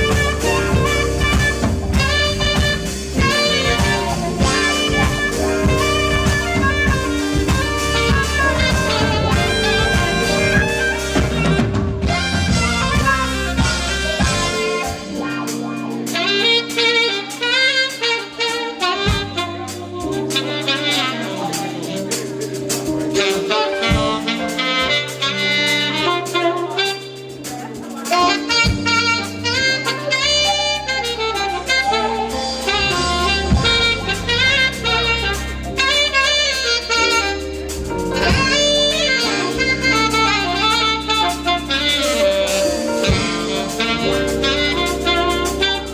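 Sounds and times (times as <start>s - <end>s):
bass line: 0.0s - 45.9s
drums: 0.0s - 45.9s
saxophone jazz melody: 0.0s - 45.9s.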